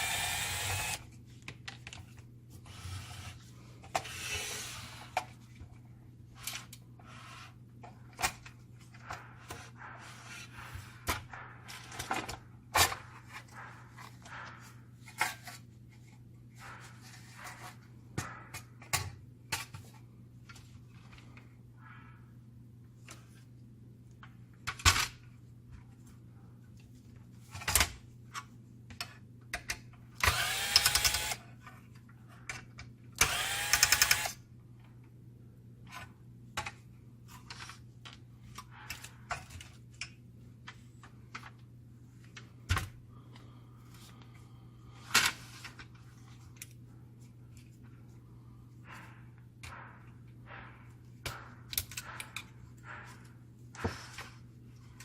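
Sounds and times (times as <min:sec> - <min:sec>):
power screwdriver whirring: 0:00.0 - 0:01.0, 0:30.2 - 0:31.4, 0:33.2 - 0:34.4
clicks and knocks of handled parts: 0:26.7 - 0:35.1, 0:35.8 - 0:44.4, 0:45.1 - 0:48.2, 0:48.8 - 0:55.0.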